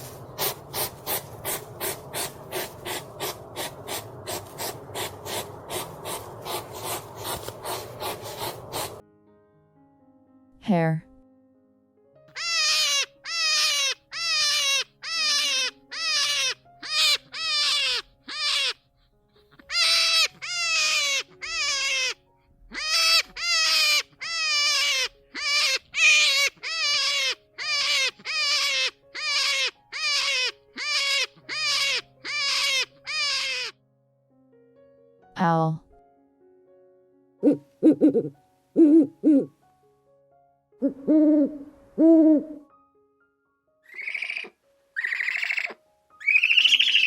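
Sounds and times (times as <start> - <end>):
soft background music: 5.9 - 47.0
hare squealing: 22.8 - 33.7.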